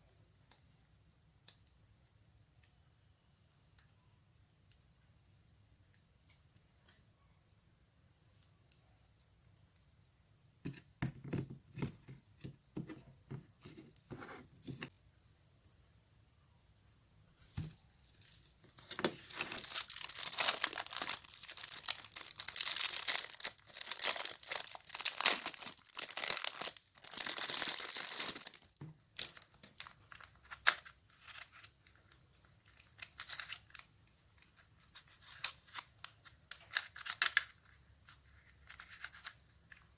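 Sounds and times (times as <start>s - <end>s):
packaging tearing and crinkling: 19.1s - 31.6s.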